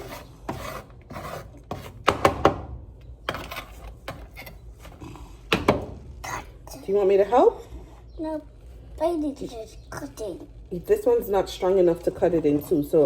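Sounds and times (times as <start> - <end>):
knife scraping watermelon: 0.0 - 2.1.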